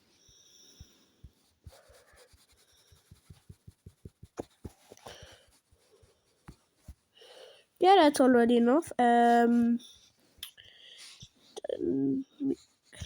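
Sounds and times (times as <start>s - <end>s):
soft breathing: 0.0s - 3.5s, 4.5s - 7.8s, 9.8s - 11.7s
stylus tapping on drawing tablet: 3.0s - 5.4s.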